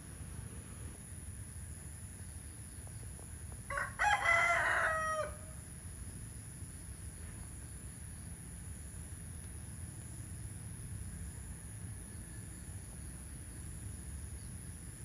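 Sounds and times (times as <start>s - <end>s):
low background noise: 0.0s - 15.0s
rooster crowing: 3.7s - 5.6s.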